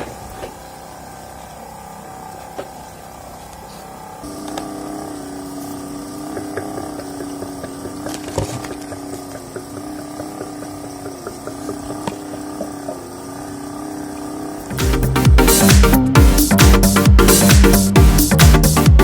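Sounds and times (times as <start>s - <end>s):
small electric motor humming: 0.0s - 19.0s
water dripping: 5.8s - 14.3s.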